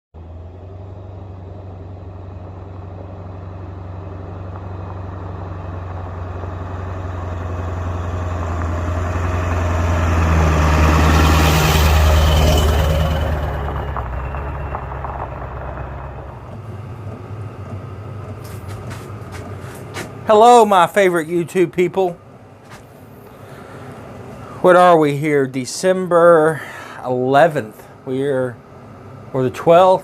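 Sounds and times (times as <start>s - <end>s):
vehicle engine passing by: 0.2s - 25.4s.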